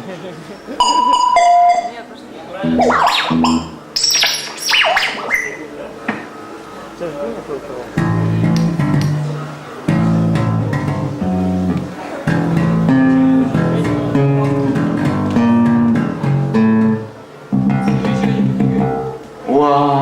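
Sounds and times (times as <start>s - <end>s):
plucked guitar notes: 0.8s - 5.9s, 8.0s - 19.3s
low bass line: 2.6s - 5.6s, 9.9s - 19.2s.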